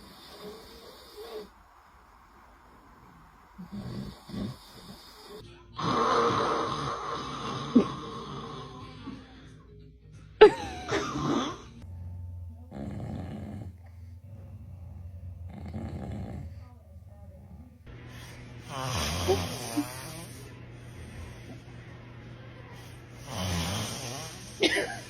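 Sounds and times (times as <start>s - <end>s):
person snoring: 3.6s - 9.3s, 12.7s - 16.8s, 18.1s - 21.8s, 22.7s - 25.0s.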